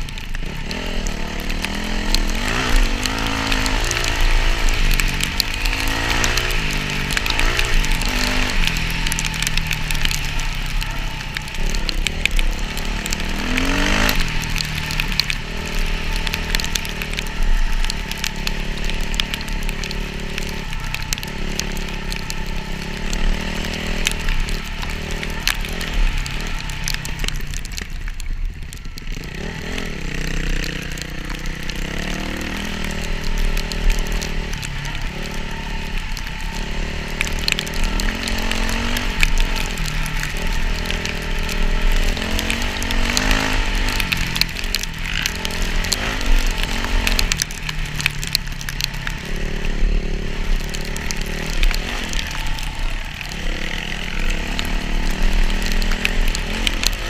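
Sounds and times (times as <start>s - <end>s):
dirt bike engine revving: 0.4s - 27.2s, 29.2s - 57.0s.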